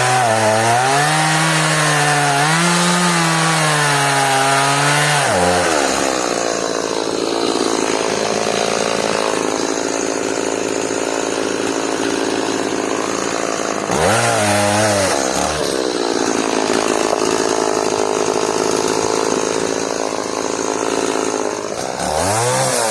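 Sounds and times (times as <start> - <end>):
chainsaw cutting wood: 0.0 - 22.9.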